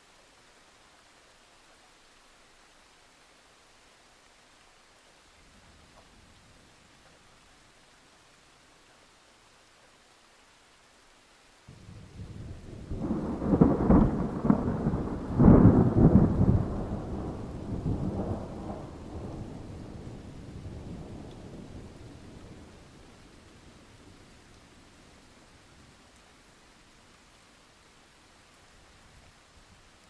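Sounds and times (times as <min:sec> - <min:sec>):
faint hiss of rain: 0:00.0 - 0:30.0
thunder rumbling and cracking: 0:11.8 - 0:22.7.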